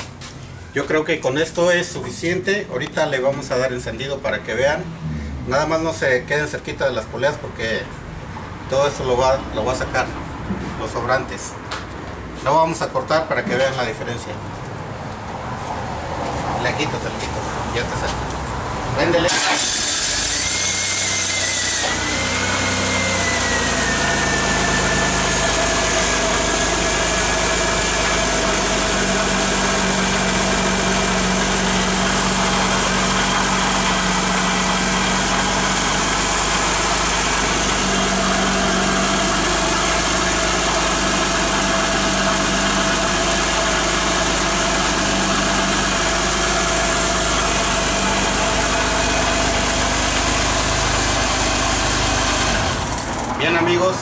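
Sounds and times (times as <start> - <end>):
car engine idling: 19.2 - 53.8.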